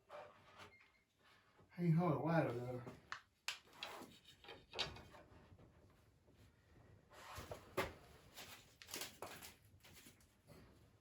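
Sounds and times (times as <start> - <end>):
light wooden knocks and scrapes: 3.6 - 6.0.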